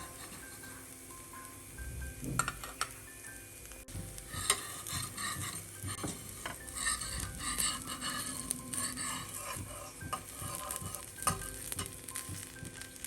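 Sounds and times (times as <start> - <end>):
spatula scraping a pan: 0.0 - 0.8, 4.1 - 13.0
food sizzling in a pan: 0.0 - 13.0.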